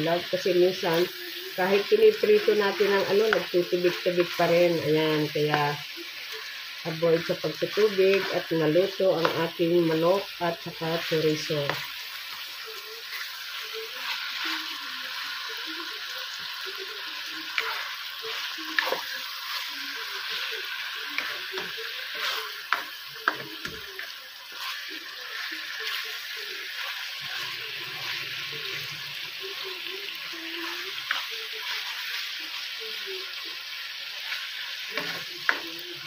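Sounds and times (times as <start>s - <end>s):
meat sizzling in oil: 0.0s - 36.0s
spatula knocking and scraping pan: 21.2s - 26.0s.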